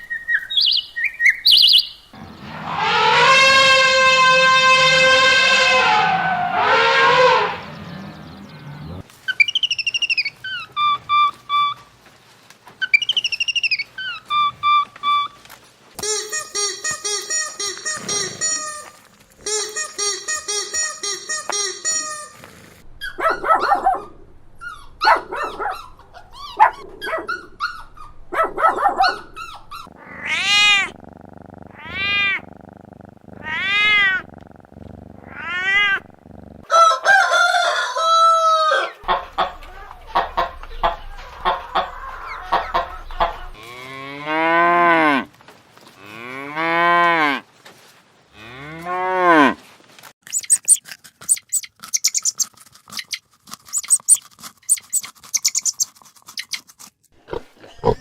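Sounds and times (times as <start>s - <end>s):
drawn-out rising and falling calls: 0.0s - 12.0s, 12.8s - 15.4s, 50.3s - 56.6s
cow mooing: 2.2s - 9.0s, 48.3s - 49.6s.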